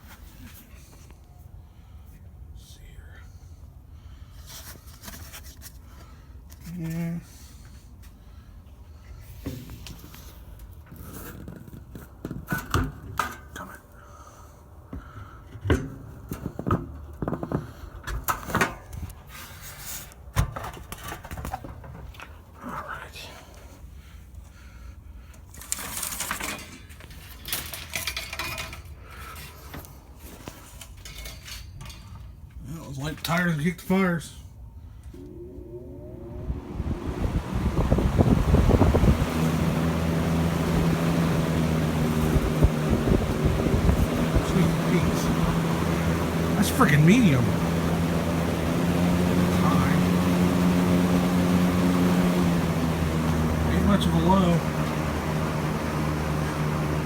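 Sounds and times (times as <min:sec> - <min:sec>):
air buffeting thumps: 0:35.1 - 0:57.0
fan blade scraping on shaft: 0:35.2 - 0:57.0.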